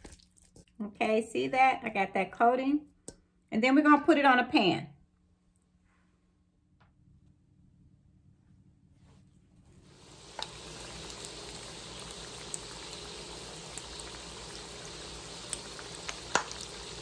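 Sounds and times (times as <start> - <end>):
chicken wings sizzling in oil: 9.8 - 17.0.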